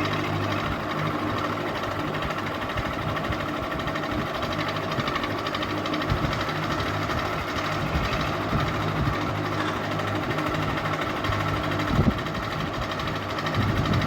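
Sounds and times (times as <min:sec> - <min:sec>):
ceiling fan motor hum: 0:00.0 - 0:14.0.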